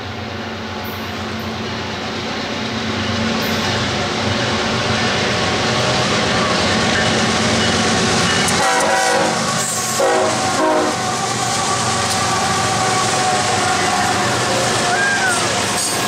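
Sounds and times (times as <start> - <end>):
freight train passing: 0.0 - 16.0
train horn blasts: 8.4 - 14.4.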